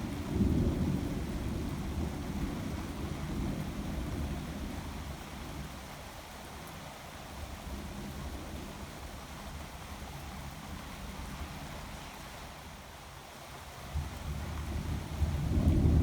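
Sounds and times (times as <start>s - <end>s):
steady rain hiss: 0.0s - 16.0s
distant thunder rumble: 15.3s - 16.0s.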